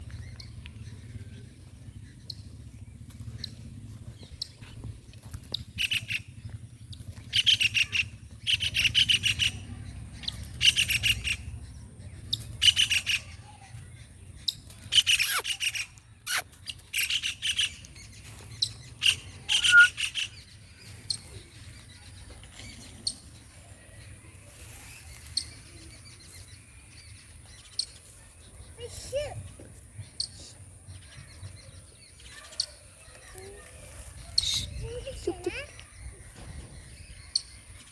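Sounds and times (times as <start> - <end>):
low steady rumble: 0.0 - 12.7
kingfisher chick rattling calls: 14.8 - 17.8.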